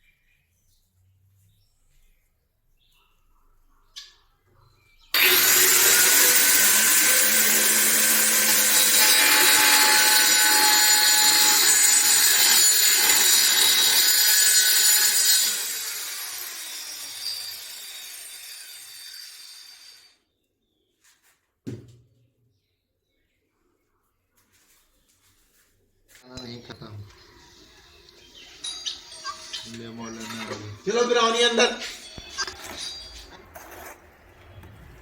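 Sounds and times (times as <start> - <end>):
electric power tool whining: 5.2 - 20.1.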